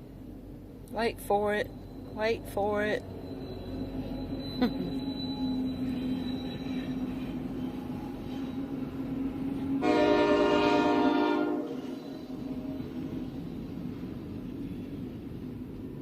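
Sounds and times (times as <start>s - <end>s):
train approaching with low drone: 0.0s - 16.0s
locomotive horn blast: 9.8s - 12.0s.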